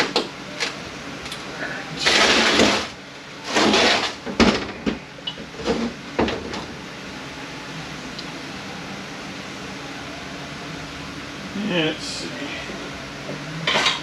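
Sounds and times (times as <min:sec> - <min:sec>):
metal parts scraping: 0:03.5 - 0:04.2.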